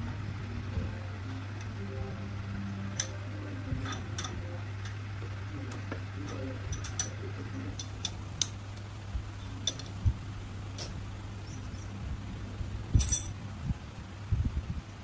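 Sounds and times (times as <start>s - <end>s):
steady low hum: 0.0s - 15.0s
tools and metal parts clicking: 3.0s - 3.2s, 3.8s - 5.0s, 6.2s - 8.8s, 9.6s - 10.0s, 13.0s - 13.4s.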